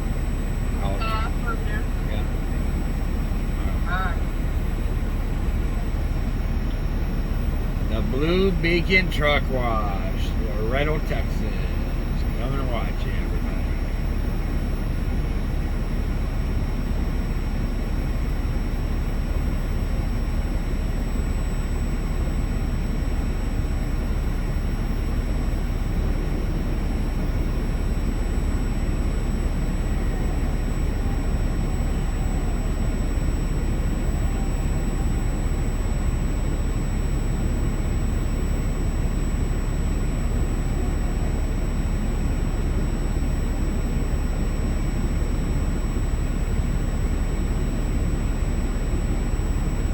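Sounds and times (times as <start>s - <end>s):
diesel truck engine idling: 0.0s - 49.9s.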